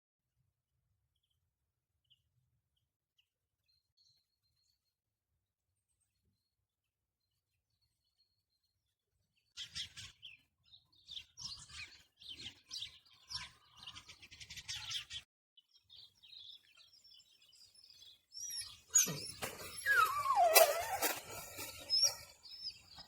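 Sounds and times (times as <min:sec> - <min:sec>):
birds chirping: 0:09.6 - 0:23.0
animal call sliding down in pitch: 0:19.0 - 0:21.7.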